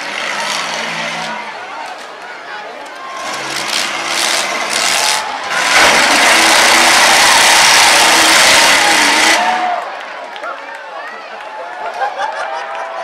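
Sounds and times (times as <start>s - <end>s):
car engine revving hard: 3.2s - 9.8s.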